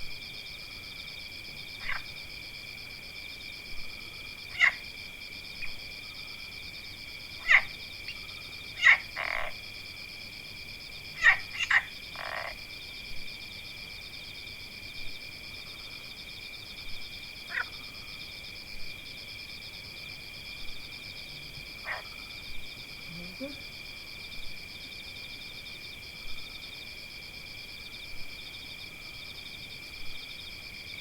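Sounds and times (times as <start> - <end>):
sharp animal calls: 4.5 - 4.8, 11.2 - 11.9.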